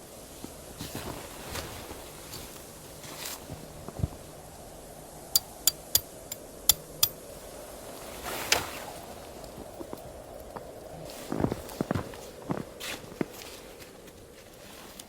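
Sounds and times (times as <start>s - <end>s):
steady background hiss: 0.0s - 15.0s
sharp clicks: 5.4s - 7.2s.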